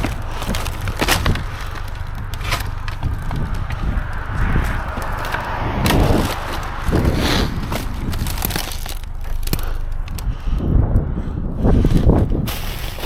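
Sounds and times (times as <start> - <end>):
debris knocking and clattering: 0.0 - 10.3
low rumble: 0.0 - 13.0.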